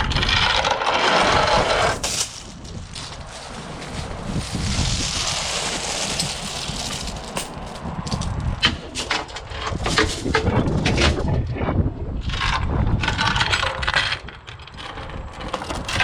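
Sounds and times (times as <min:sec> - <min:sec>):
wind rushing: 0:01.0 - 0:13.1.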